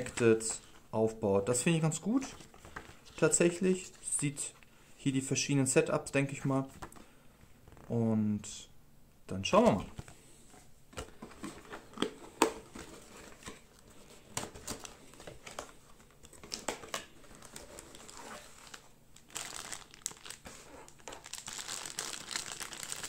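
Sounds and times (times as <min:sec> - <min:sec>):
packaging crinkling and rustling: 0:11.0 - 0:23.0.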